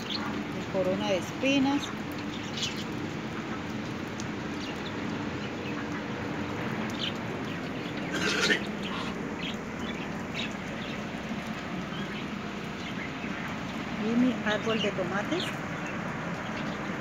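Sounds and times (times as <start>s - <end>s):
rain falling on plants: 0.0s - 17.0s
bird calling: 6.9s - 11.1s.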